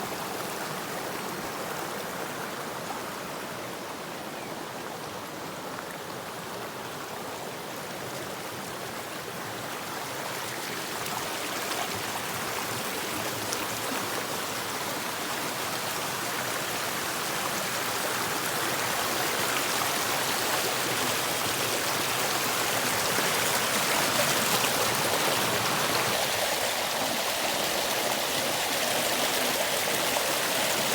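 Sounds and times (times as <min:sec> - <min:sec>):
stream water rushing: 0:00.0 - 0:30.9.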